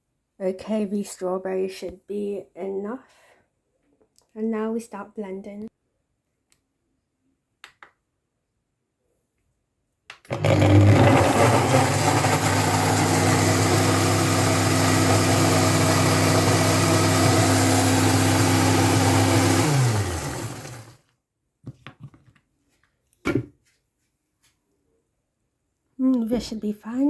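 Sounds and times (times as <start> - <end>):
electric blender running: 10.3 - 21.0.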